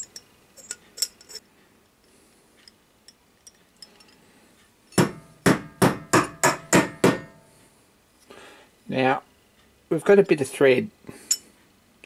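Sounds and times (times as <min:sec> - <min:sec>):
hammer tapping on metal: 0:04.9 - 0:07.5.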